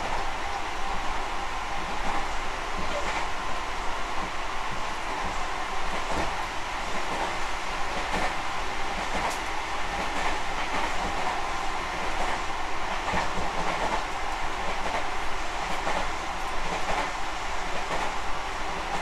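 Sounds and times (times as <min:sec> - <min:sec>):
train wheels rumbling on rails: 0:00.0 - 0:19.0
faint rail-joint clicks: 0:09.0 - 0:11.4, 0:13.0 - 0:18.1.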